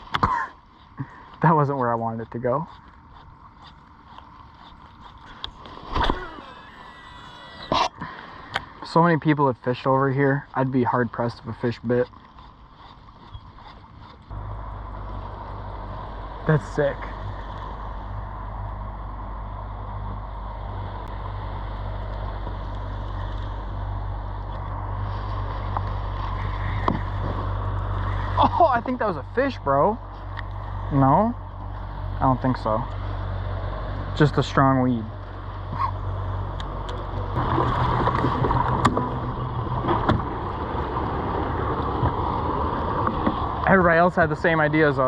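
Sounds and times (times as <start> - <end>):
boat motor humming: 0.0 - 45.0
water noise: 0.0 - 45.0
wind: 0.0 - 45.0
water rushing past: 37.4 - 45.0.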